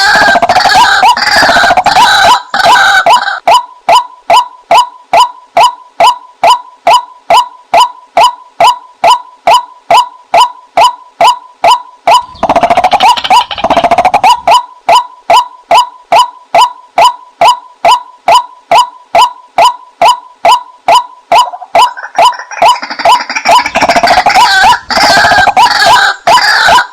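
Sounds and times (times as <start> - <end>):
waterhen calls: 0.0 - 5.7, 6.4 - 26.9.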